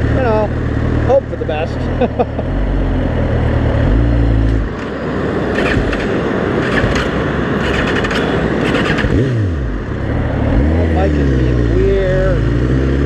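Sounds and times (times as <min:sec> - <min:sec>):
motorcycle engine: 0:00.0 - 0:13.0
wind and road noise: 0:00.0 - 0:13.0.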